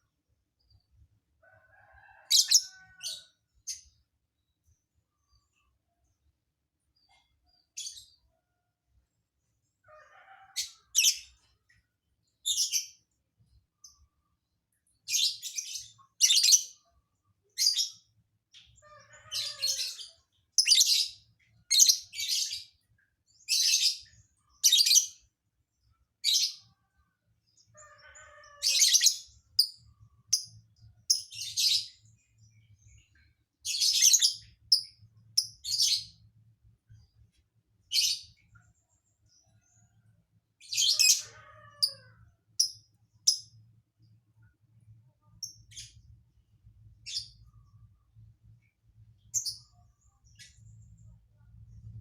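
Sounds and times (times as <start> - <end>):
bird chirping and warbling: 2.2 - 4.0, 17.6 - 18.0, 18.6 - 22.8, 23.4 - 25.2, 27.5 - 32.2, 32.9 - 36.3, 37.9 - 38.6, 40.6 - 43.6, 47.0 - 47.8, 49.2 - 52.0.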